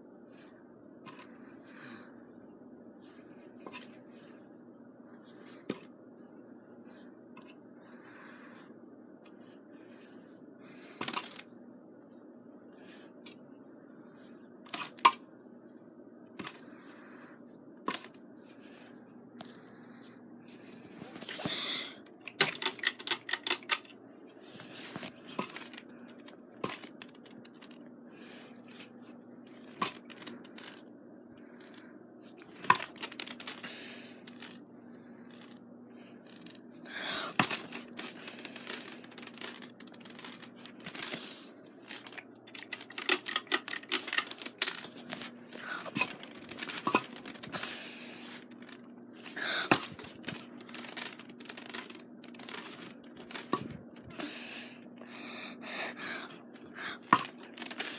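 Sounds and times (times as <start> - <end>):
ceiling fan motor hum: 0.0 - 57.9
rustling or scraping: 31.5 - 34.6, 36.3 - 54.1, 57.0 - 57.9.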